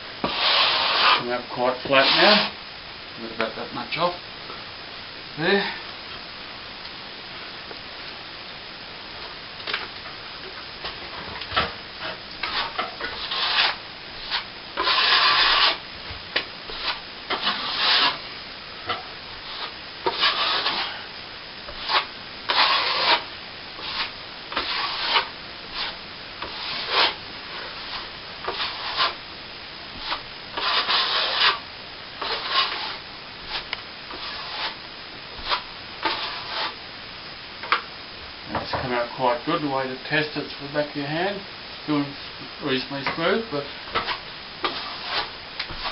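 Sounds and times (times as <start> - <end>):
steel trowel scraping cement: 0.2 - 1.3, 2.0 - 2.5, 12.1 - 15.8, 16.7 - 18.2, 18.9 - 21.0, 21.7 - 29.2, 30.0 - 31.6, 32.2 - 34.8, 35.4 - 36.8, 44.0 - 45.9.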